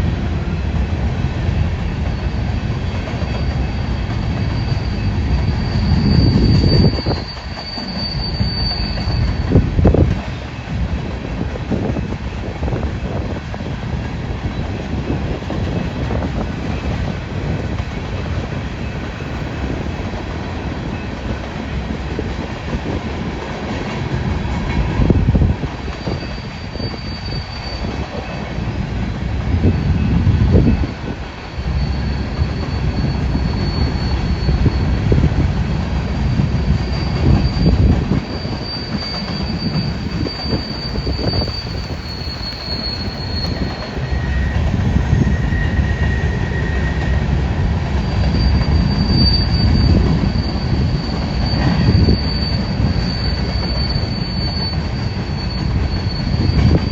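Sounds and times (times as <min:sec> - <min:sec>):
train cars rolling on rails: 0:00.0 - 0:56.9
high wheel squeal: 0:01.8 - 0:10.7, 0:25.0 - 0:28.9, 0:29.5 - 0:56.9.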